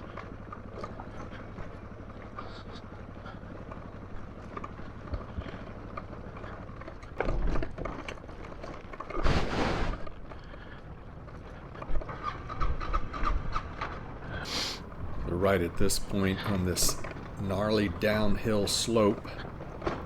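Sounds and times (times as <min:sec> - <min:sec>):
motorcycle engine hum: 0:14.5 - 0:20.0
wheels knocking over rocks: 0:14.8 - 0:20.0.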